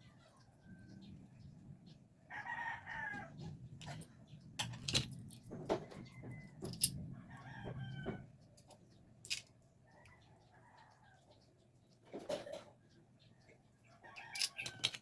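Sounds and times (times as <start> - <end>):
rooster crowing: 2.3 - 3.3, 7.2 - 8.2.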